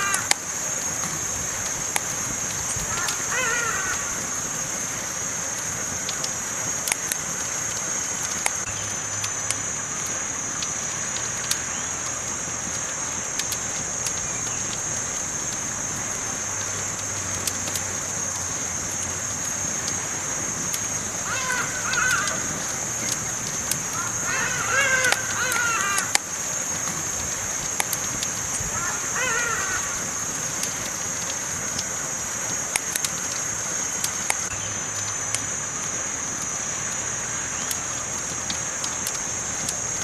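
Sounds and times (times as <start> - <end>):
campfire crackling: 0.0 - 40.0
wavering pitched call: 23.9 - 26.2.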